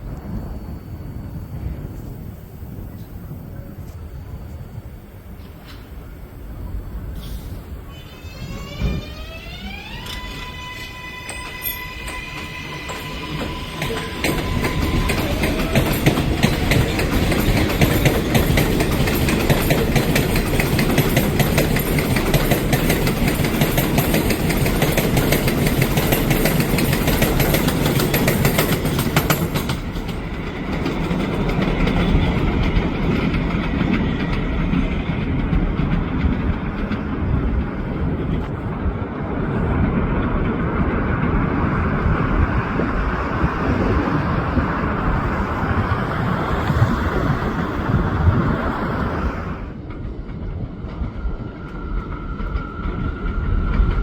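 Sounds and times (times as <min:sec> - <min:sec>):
train motor whine: 0:00.0 - 0:37.8
train rolling rumble: 0:00.0 - 0:54.0
wheels clattering over rail: 0:11.2 - 0:38.6.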